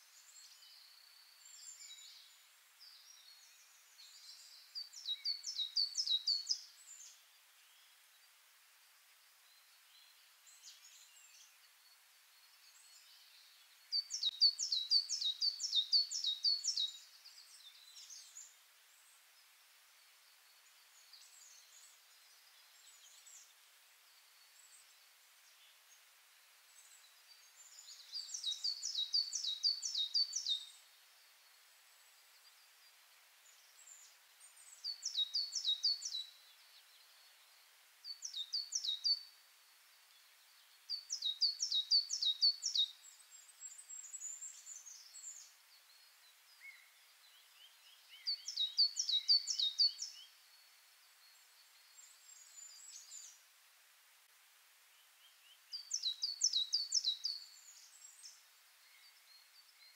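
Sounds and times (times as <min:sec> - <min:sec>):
faint chirps: 0:00.0 - 0:53.6, 0:54.9 - 0:59.9
light hiss: 0:00.0 - 0:59.9
songbird singing: 0:00.0 - 0:59.9.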